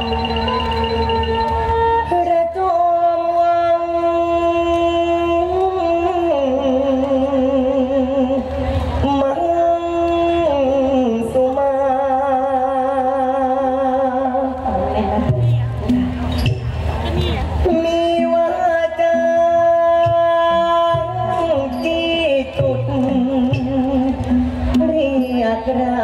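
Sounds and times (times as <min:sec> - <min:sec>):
musical accompaniment: 0:00.0 - 0:11.9
person singing long wavering notes: 0:00.0 - 0:16.1.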